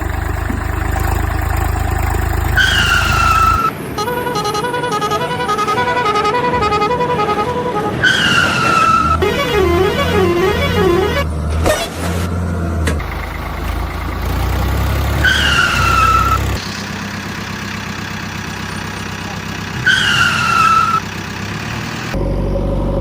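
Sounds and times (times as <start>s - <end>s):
electronic engine-like hum: 0.0s - 3.7s
falling whistle-like tones: 0.0s - 3.7s, 15.2s - 16.6s.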